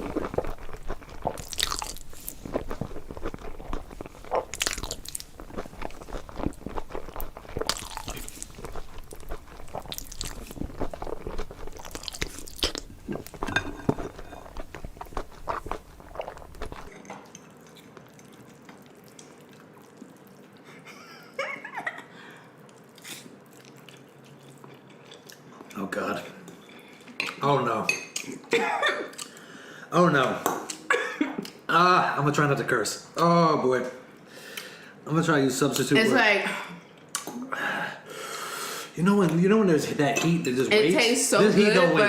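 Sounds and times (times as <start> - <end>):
soft utensil sounds: 0.0 - 18.7
chewing noodles: 0.0 - 20.9, 22.6 - 25.8.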